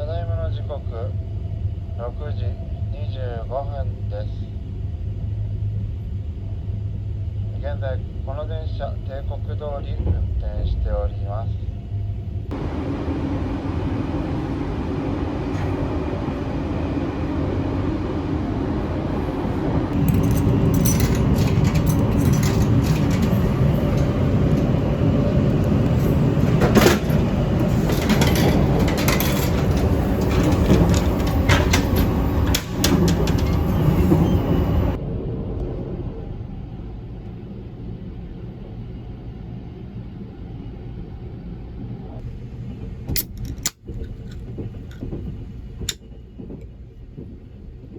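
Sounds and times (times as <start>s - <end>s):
train wheels rumbling on rail: 0.0s - 40.2s, 41.4s - 47.9s
rapid clicking and rattling: 19.9s - 34.2s.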